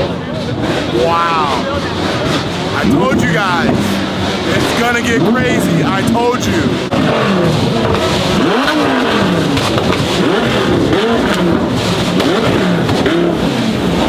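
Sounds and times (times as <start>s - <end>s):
car engine revving: 6.6s - 14.0s.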